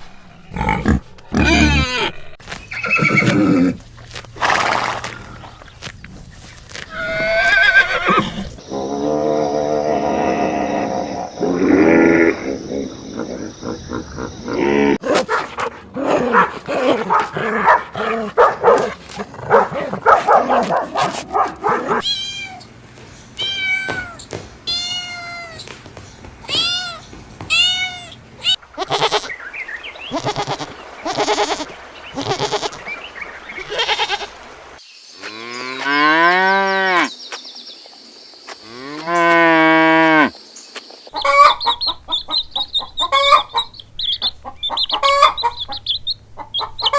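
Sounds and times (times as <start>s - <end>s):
farm animal calls: 0.0s - 3.9s, 6.9s - 15.0s, 16.0s - 25.7s, 26.4s - 29.4s, 30.1s - 32.8s, 41.2s - 46.9s.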